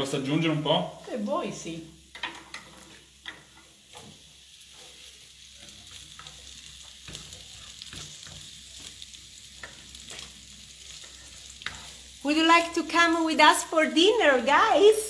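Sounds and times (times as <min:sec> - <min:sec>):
vegetables sizzling in a frying pan: 0:00.0 - 0:15.0
spatula knocking and scraping pan: 0:02.1 - 0:12.1.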